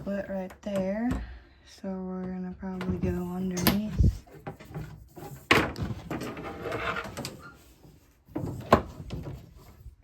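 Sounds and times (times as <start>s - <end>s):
rustling and scraping: 2.8s - 10.0s.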